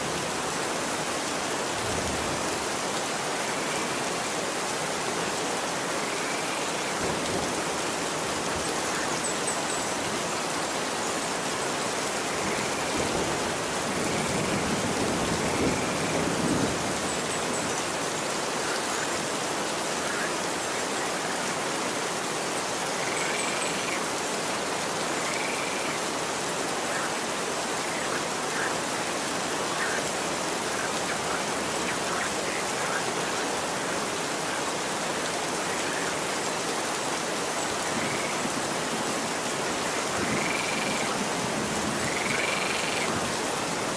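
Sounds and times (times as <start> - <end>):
rain falling on a street: 0.0 - 43.9.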